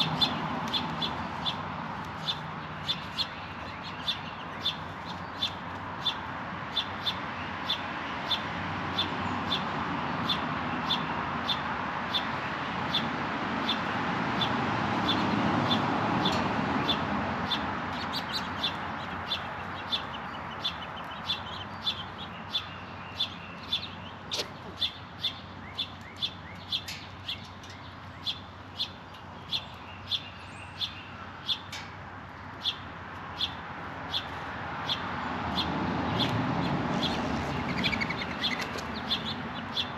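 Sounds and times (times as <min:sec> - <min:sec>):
bird chirping: 0:00.0 - 0:13.8, 0:14.4 - 0:31.8, 0:32.5 - 0:39.9.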